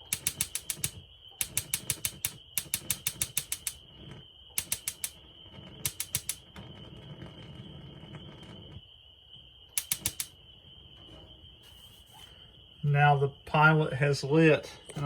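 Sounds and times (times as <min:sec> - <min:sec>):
spark igniter clicking: 0:00.0 - 0:03.9, 0:04.6 - 0:05.2, 0:05.8 - 0:06.6, 0:09.7 - 0:10.4.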